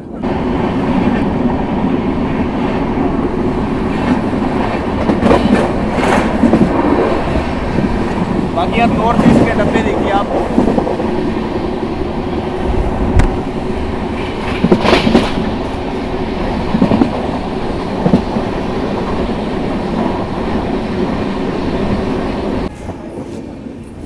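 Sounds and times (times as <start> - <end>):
train wheels rumbling on rails: 0.0 - 24.0
wheels clacking over rail joints: 3.0 - 11.7, 13.1 - 21.1.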